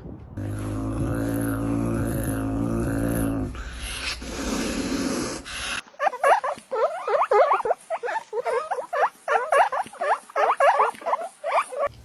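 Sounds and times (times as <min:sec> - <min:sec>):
squeaky animal calls: 0:06.0 - 0:11.9.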